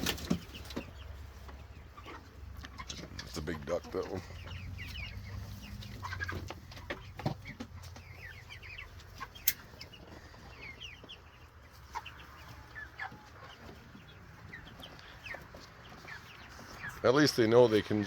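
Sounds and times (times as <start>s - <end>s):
chickens clucking and cheeping: 0.0s - 18.0s.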